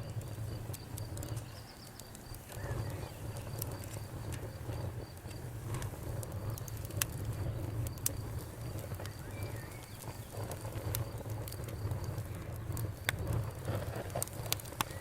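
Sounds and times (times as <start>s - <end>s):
cricket chirping: 0.0s - 5.5s, 7.3s - 13.6s
campfire crackling and popping: 0.0s - 15.0s.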